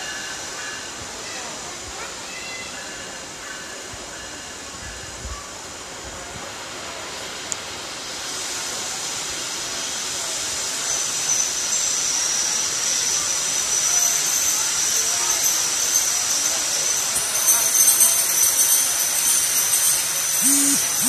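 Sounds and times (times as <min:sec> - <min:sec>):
passenger train rolling in: 0:00.0 - 0:21.0
high steady squeal: 0:09.7 - 0:21.0.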